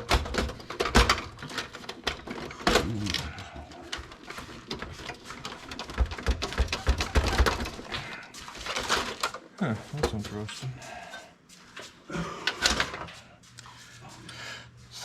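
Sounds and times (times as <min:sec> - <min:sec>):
computer parts clicking and rattling: 0:00.0 - 0:10.4.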